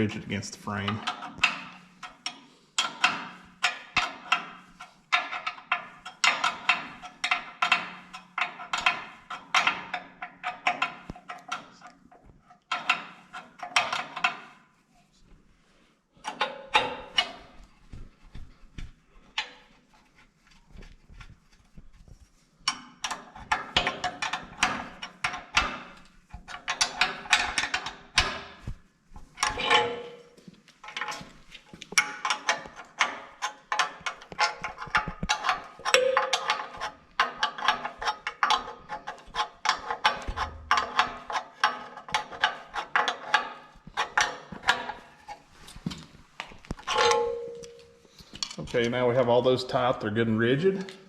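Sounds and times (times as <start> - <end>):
wrench clicking on metal nuts: 0.9 - 11.7, 22.7 - 28.5, 31.8 - 45.0.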